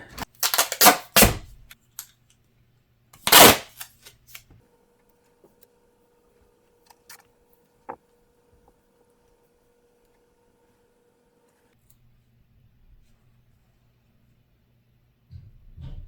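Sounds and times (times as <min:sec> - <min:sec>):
duct tape ripping: 0:00.3 - 0:01.4, 0:03.2 - 0:04.1.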